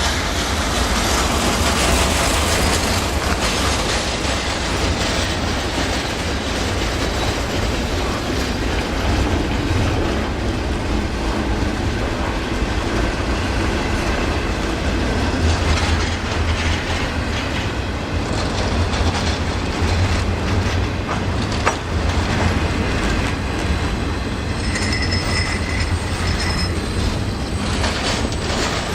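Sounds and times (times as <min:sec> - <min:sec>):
train rumbling past: 0:00.0 - 0:28.9
wheels clacking over rails: 0:00.0 - 0:28.9
high wheel squeal: 0:24.0 - 0:28.9.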